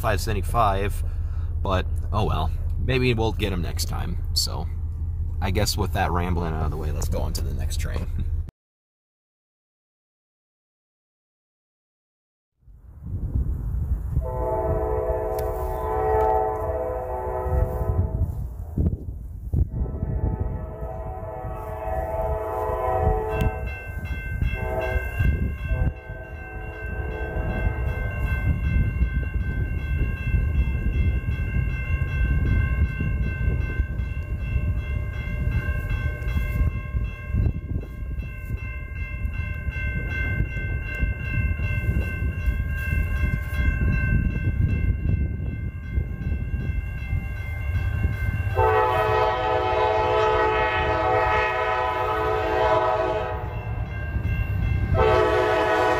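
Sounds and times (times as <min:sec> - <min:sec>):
train rumbling past: 0:00.0 - 0:08.5, 0:12.8 - 0:55.9
train horn blasts: 0:14.1 - 0:18.5, 0:19.7 - 0:28.6, 0:48.4 - 0:54.0, 0:54.6 - 0:55.9
crossing bell ringing: 0:19.8 - 0:55.9.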